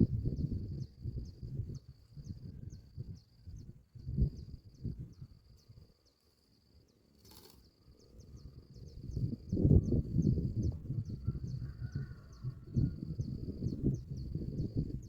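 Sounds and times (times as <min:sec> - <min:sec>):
insect chirping: 0:00.0 - 0:10.8.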